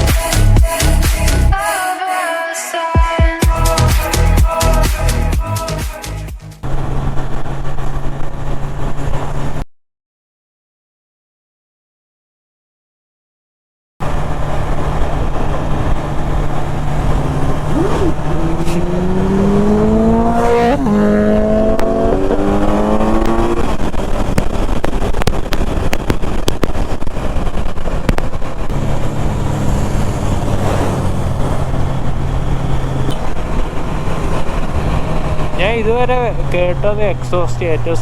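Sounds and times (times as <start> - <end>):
motorcycle engine revving: 14.0 - 38.0.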